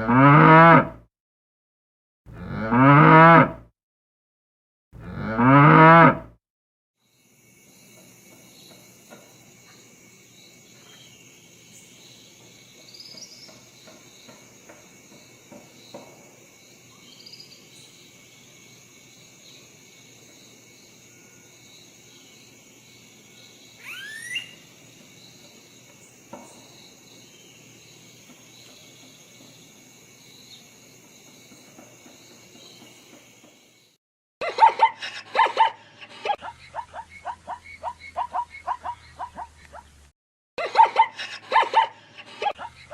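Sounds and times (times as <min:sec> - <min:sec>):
cow mooing: 0:00.0 - 0:01.0, 0:02.3 - 0:03.6, 0:05.0 - 0:06.3
insects chirring: 0:07.0 - 0:39.9, 0:40.6 - 0:42.9
rising call: 0:23.8 - 0:24.7.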